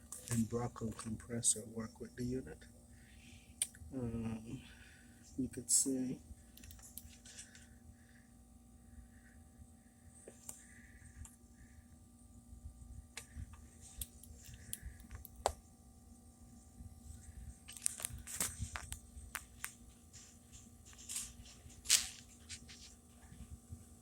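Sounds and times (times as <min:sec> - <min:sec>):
faint steady hum: 0:00.0 - 0:24.0
hands handling objects: 0:17.6 - 0:23.5.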